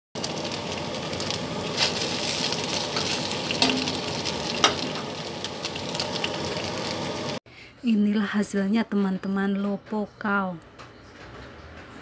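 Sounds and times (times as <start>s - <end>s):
radish cake sizzling in oil: 0.2s - 7.4s.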